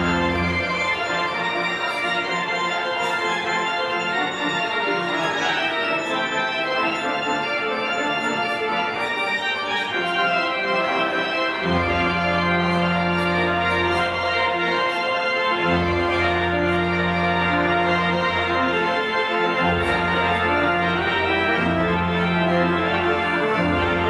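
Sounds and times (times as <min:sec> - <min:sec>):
low organ pedal note: 0:00.0 - 0:01.3
organ playing full chords: 0:00.0 - 0:24.0.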